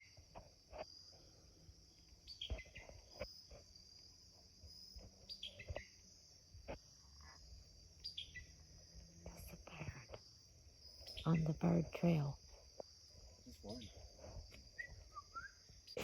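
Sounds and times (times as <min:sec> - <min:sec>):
high-pitched insect chorus: 0:00.0 - 0:16.0
bird chirping: 0:08.0 - 0:08.5.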